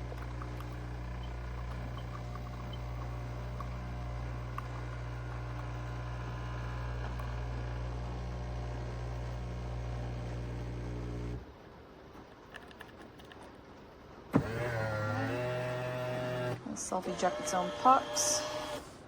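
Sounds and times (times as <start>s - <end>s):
espresso machine pump humming: 0.0s - 11.4s, 14.4s - 18.9s.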